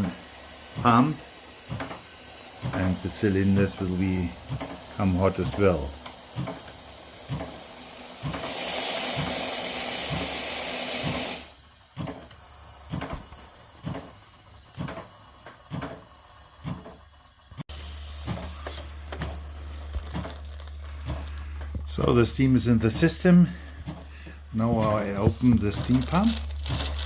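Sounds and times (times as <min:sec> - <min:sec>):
steam hissing from fittings: 0:00.0 - 0:27.0
steam spits and pops: 0:00.0 - 0:27.0
steady low hum: 0:11.4 - 0:27.0.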